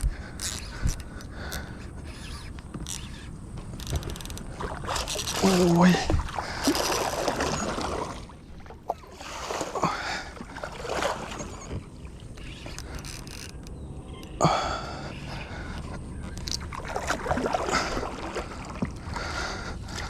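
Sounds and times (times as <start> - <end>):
water splashing around kayak: 0.0 - 13.7, 14.5 - 20.0.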